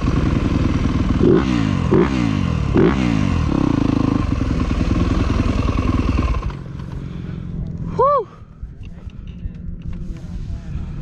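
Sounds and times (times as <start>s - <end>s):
dirt bike engine revving: 0.0s - 7.3s.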